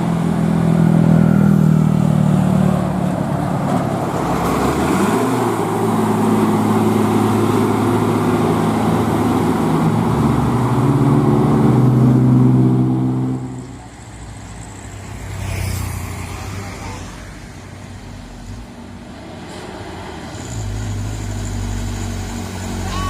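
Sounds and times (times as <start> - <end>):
truck diesel engine labouring: 0.0 - 15.4, 16.0 - 23.0.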